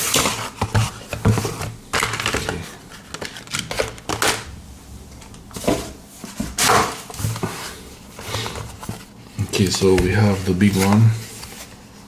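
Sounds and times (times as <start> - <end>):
cardboard boxes handled: 5.5 - 11.8.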